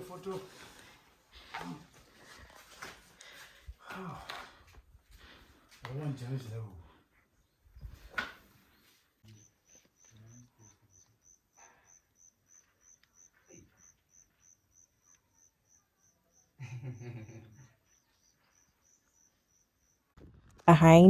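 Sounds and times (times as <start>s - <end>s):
insect chirping: 9.2s - 20.2s.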